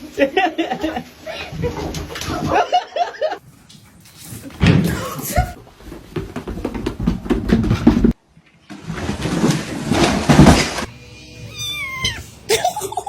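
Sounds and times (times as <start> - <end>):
cat meowing: 11.1 - 12.5.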